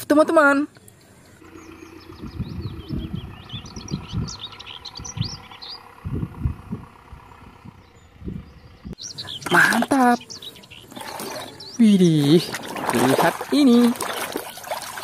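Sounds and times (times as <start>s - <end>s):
small birds chirping: 0.6s - 15.0s
low thumps and rumbling: 1.2s - 9.2s.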